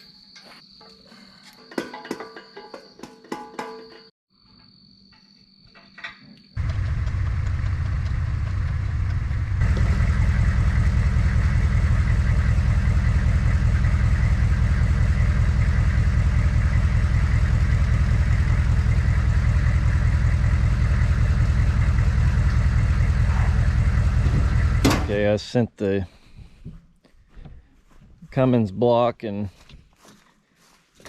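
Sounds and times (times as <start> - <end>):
engine idling: 6.6 - 25.2.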